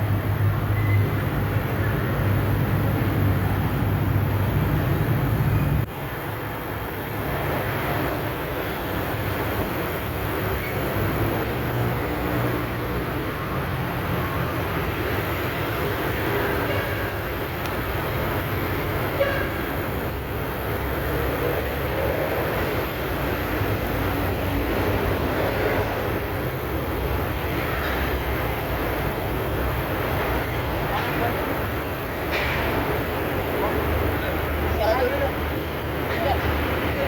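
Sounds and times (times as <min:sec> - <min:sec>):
noisy hiss: 0:00.0 - 0:37.0.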